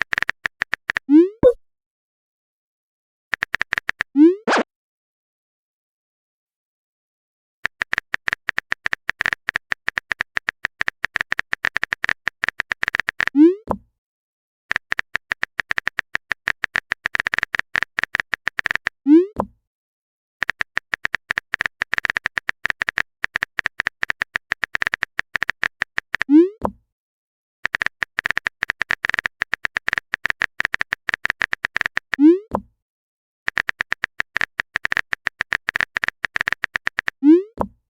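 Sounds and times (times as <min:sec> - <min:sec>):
keyboard typing clicks: 0:00.0 - 0:01.6, 0:03.3 - 0:04.1, 0:07.6 - 0:13.4, 0:14.7 - 0:19.0, 0:20.4 - 0:26.8, 0:27.6 - 0:32.6, 0:33.5 - 0:37.8.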